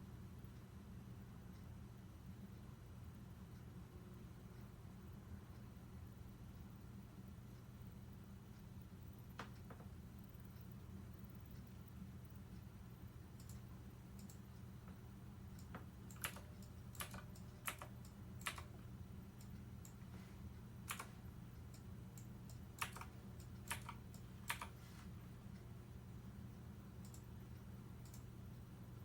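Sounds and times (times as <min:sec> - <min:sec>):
steady low hum: 0:00.0 - 0:29.0
sharp clicks: 0:13.4 - 0:15.0, 0:15.6 - 0:20.0, 0:20.8 - 0:24.8, 0:27.0 - 0:27.3, 0:28.0 - 0:28.3.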